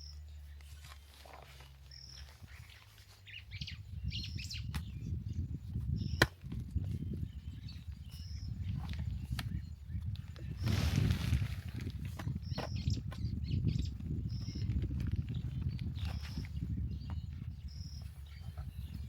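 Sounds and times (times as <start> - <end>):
bird chirping: 0.0 - 11.5, 12.1 - 19.0
low rumbling noise: 7.0 - 18.0.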